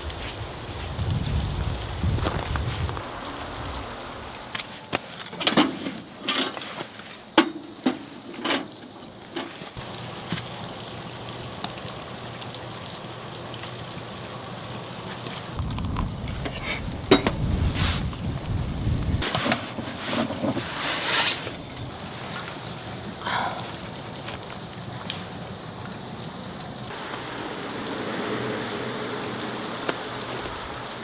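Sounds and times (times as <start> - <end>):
wind gusts rumbling: 0.0 - 4.6, 15.5 - 19.3.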